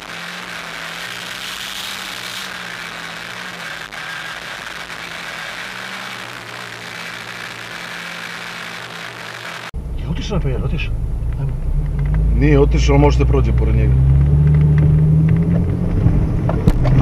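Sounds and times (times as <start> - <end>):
engine idling: 9.8 - 13.9.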